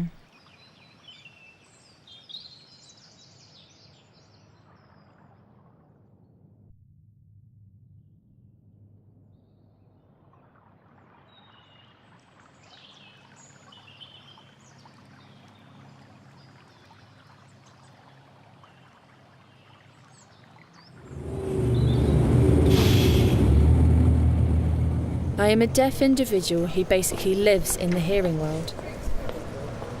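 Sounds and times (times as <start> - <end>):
water trickling: 10.5 - 29.9
traffic rumble: 21.0 - 30.0.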